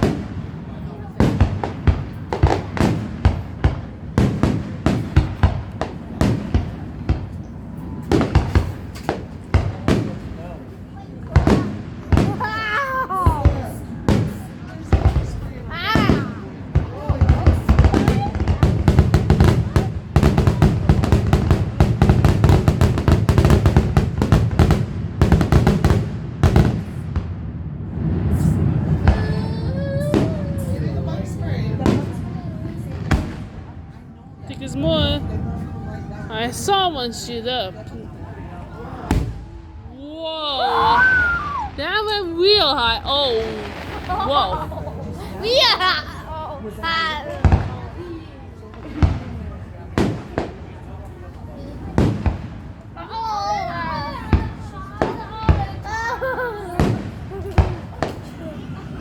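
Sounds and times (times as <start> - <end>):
fireworks bursting: 0.0 - 59.0
low booming rumble: 16.7 - 36.4.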